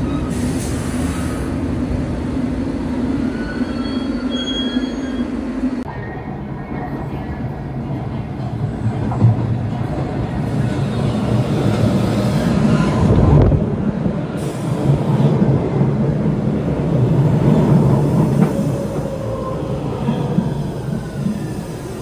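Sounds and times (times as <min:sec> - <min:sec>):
train rumbling on rails: 0:00.0 - 0:22.0.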